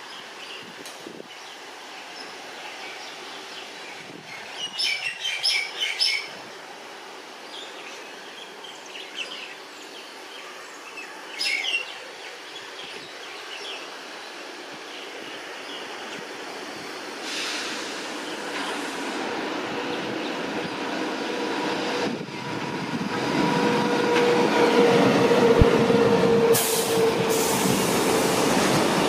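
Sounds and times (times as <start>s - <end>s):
electric locomotive running: 17.4s - 29.0s.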